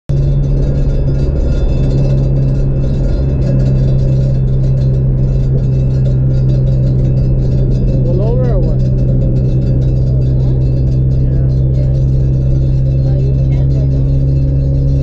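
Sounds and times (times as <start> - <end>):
car engine droning: 0.1 - 15.0
tyre and road noise: 0.1 - 15.0.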